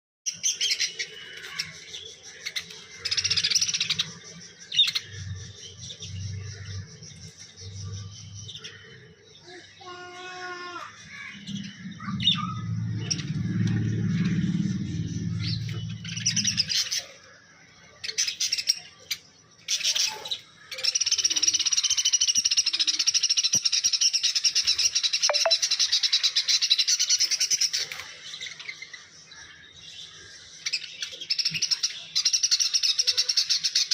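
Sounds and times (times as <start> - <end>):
low rumble: 11.3 - 17.0.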